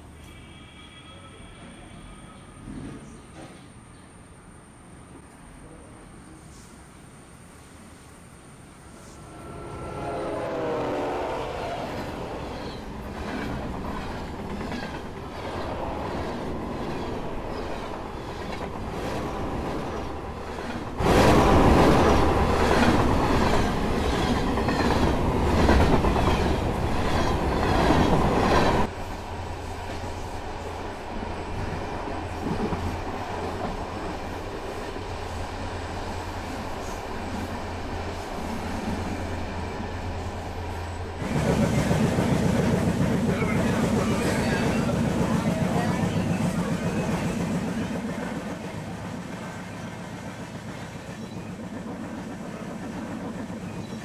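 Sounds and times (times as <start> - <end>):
train horn: 0.0 - 2.4, 9.1 - 12.4
rush of train noise: 0.0 - 54.0.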